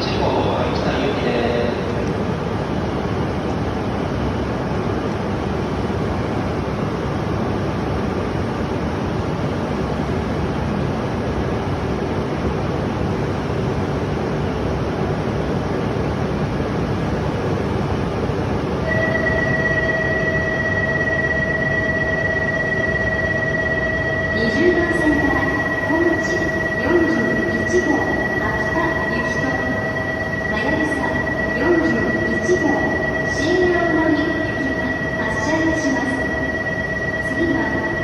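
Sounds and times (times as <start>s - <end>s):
train equipment rushing hum: 0.0s - 38.0s
steady electronic tone: 18.8s - 38.0s.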